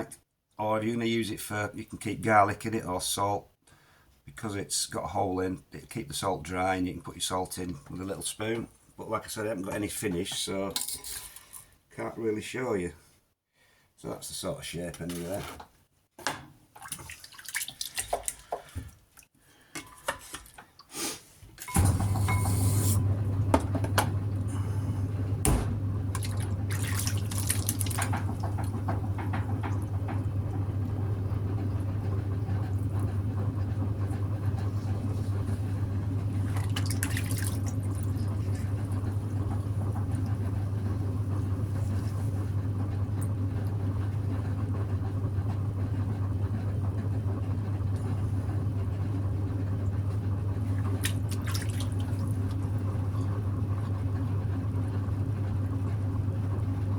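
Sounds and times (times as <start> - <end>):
water and clay sloshing: 16.7 - 20.9, 26.1 - 28.8, 36.3 - 39.1, 50.7 - 53.9
potter's wheel hum: 21.6 - 56.9.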